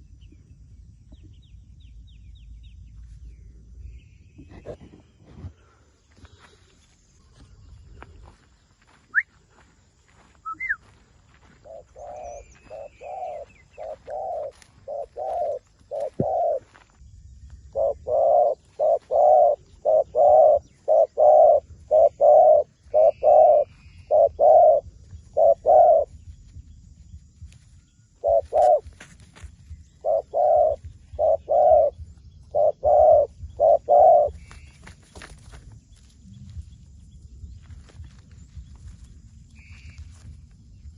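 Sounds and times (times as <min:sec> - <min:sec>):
dove cooing: 0:11.6 - 0:16.8, 0:17.7 - 0:26.3, 0:28.1 - 0:29.2, 0:29.8 - 0:34.7.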